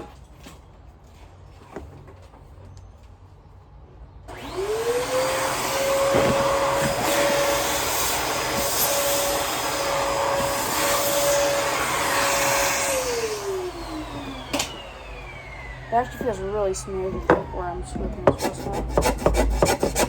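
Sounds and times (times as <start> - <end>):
vacuum cleaner motor whining: 4.3 - 18.7.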